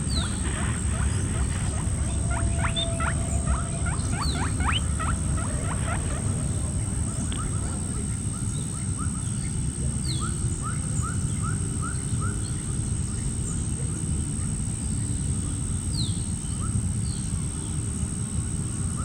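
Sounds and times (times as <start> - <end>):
small animal squeaking: 0.0 - 8.0
low rumble: 0.0 - 8.9
faint high whine: 0.0 - 19.0.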